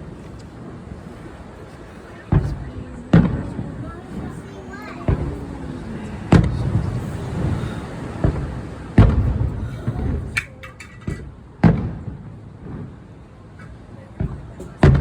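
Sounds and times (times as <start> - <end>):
fireworks booming: 0.8 - 15.0
crackling fireworks pops: 2.1 - 5.5, 6.3 - 7.6, 8.2 - 15.0
small fireworks bang: 2.2 - 5.6, 6.3 - 15.0.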